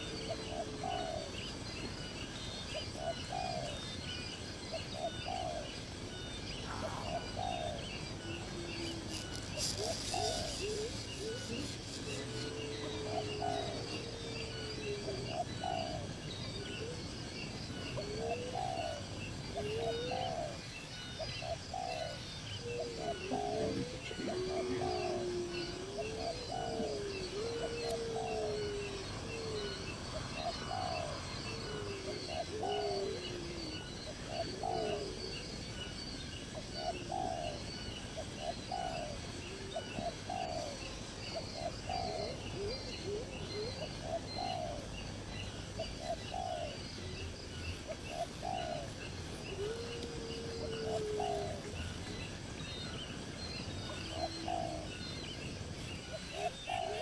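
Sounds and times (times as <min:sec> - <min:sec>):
sliding bird calls: 0:08.4 - 0:12.6.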